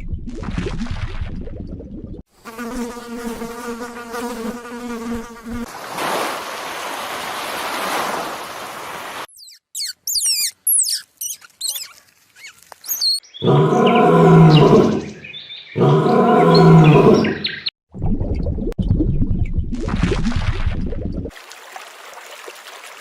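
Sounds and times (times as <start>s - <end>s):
insect buzzing: 2.4s - 5.7s, 9.4s - 15.1s
bird chirping: 9.3s - 17.7s.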